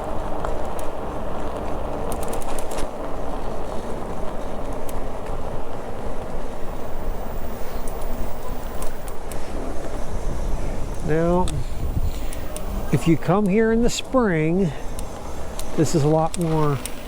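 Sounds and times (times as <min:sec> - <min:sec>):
bicycle tyre and wind noise: 0:00.0 - 0:17.0
light clicks: 0:10.9 - 0:13.6, 0:14.8 - 0:17.0.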